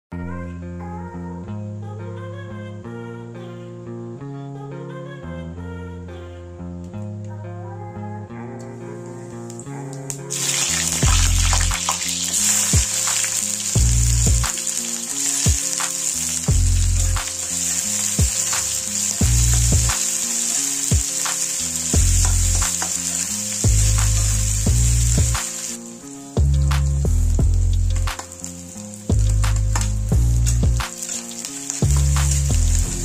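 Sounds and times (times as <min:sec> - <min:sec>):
guitar music: 0:02.8 - 0:33.0
onions sizzling in oil: 0:10.3 - 0:33.0.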